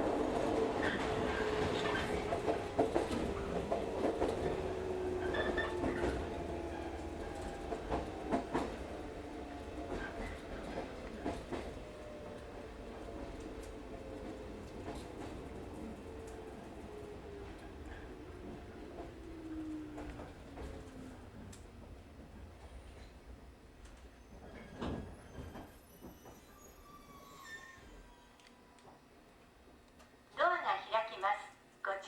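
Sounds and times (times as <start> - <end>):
train rolling rumble: 0.0 - 29.9.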